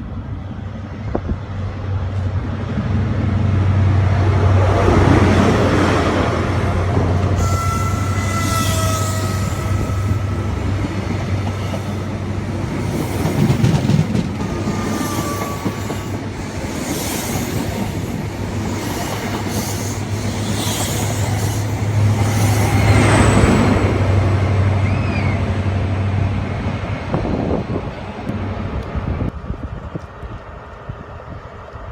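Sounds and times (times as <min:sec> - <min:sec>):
train engine hum: 0:00.0 - 0:31.9
wheels rattling over track: 0:04.6 - 0:24.4
high wheel squeals: 0:07.2 - 0:12.2, 0:14.4 - 0:24.0.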